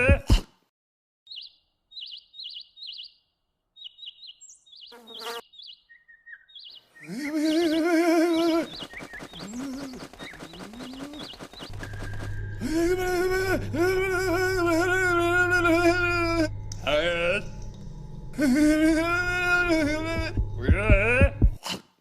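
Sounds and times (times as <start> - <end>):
small bird chirps: 1.3 - 12.5.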